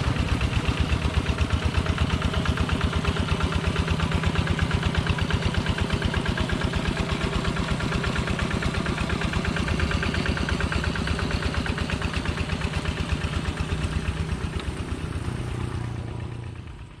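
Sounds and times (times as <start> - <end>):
diesel tractor engine idling: 0.0 - 17.0.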